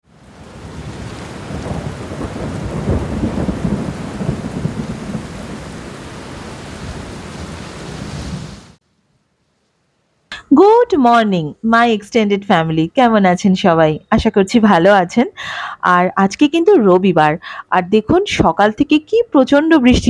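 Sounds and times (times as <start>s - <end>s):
heavy rain pouring: 0.0s - 8.8s
thunder rumbling: 0.2s - 8.8s.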